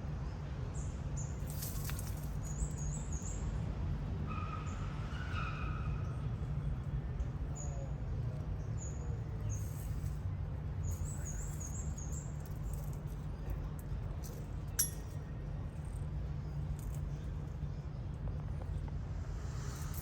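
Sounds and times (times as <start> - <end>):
steady low rumble: 9.8 - 20.0.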